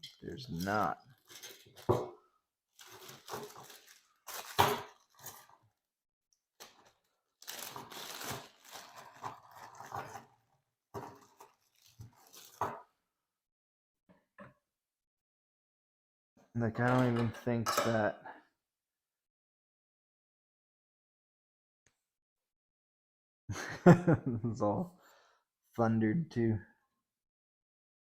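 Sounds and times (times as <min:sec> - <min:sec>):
parts and packaging rustling: 0:00.0 - 0:05.8, 0:06.5 - 0:12.9.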